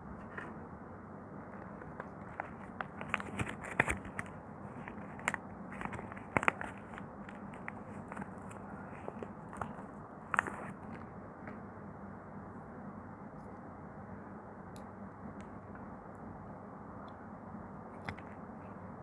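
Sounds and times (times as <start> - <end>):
soap crackling under blade: 1.6 - 11.0.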